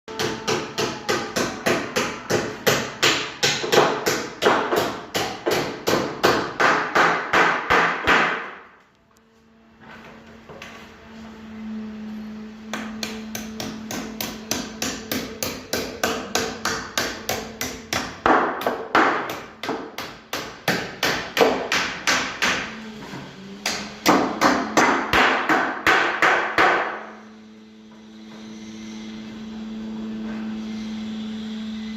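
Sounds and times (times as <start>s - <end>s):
hammer striking: 0.1s - 8.7s, 12.7s - 22.7s, 23.6s - 27.0s.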